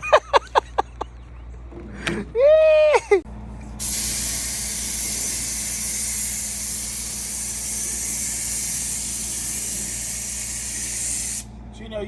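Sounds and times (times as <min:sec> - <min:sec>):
spray-paint can hissing: 0:03.8 - 0:11.5.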